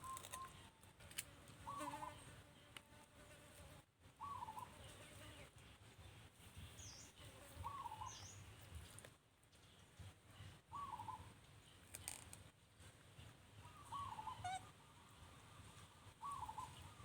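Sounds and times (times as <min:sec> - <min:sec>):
wavering bird call: 0:13.6 - 0:15.0, 0:16.2 - 0:17.0.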